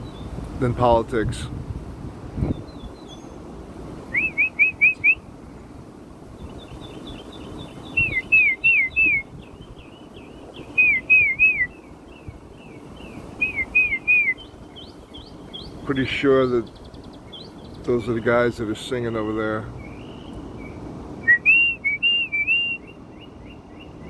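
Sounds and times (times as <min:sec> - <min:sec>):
high bird chirps: 0:02.4 - 0:03.4, 0:04.1 - 0:05.2, 0:06.4 - 0:18.3, 0:19.3 - 0:24.0
bird whistling up-and-down notes: 0:04.1 - 0:05.2, 0:06.8 - 0:09.8, 0:10.6 - 0:12.3, 0:13.3 - 0:15.8, 0:19.8 - 0:23.9.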